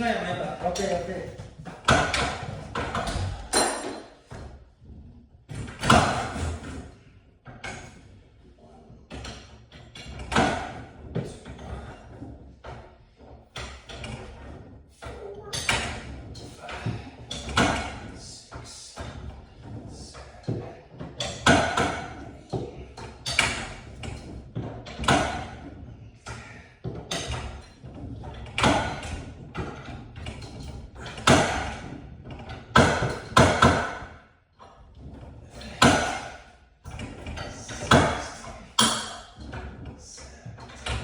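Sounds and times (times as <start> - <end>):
metal tools knocking and clanking: 1.8 - 4.4, 35.6 - 39.9.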